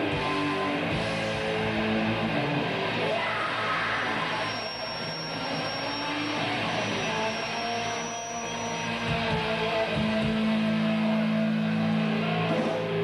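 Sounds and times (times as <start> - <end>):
bass guitar low notes: 0.0 - 3.2, 8.9 - 13.0
distorted electric guitar: 0.0 - 13.0.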